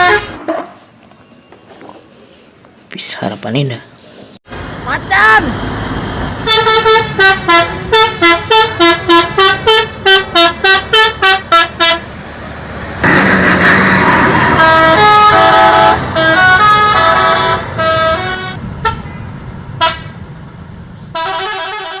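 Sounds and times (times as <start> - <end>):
multi-tone bus horn: 0.0 - 0.4, 6.4 - 12.1, 13.0 - 19.2, 19.8 - 20.2, 21.1 - 22.0.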